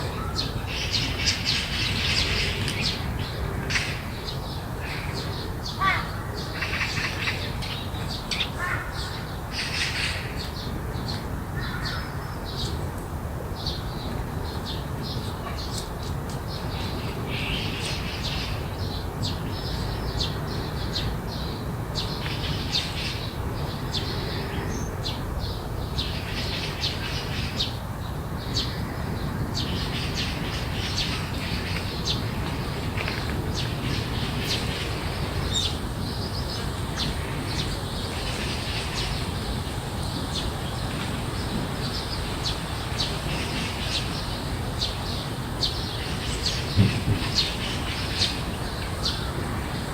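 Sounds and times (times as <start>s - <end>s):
birds chirping: 13.6s - 49.9s.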